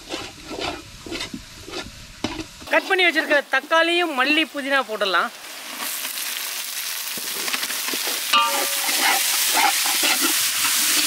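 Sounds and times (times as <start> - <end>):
metal ladle scraping a pot: 0.0 - 3.4, 8.3 - 11.0
oil sizzling in a metal pot: 0.0 - 11.0
ladle clinking on pot: 8.3 - 9.2.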